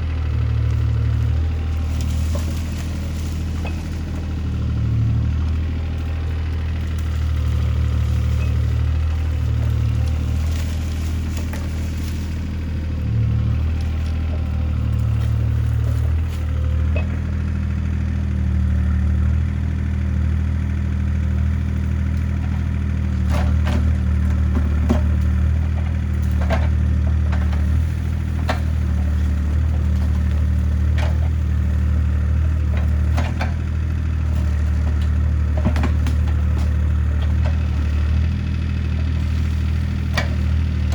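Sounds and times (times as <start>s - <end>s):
excavator diesel engine running: 0.0s - 40.9s
sharp cracks and knocks: 35.0s - 37.6s.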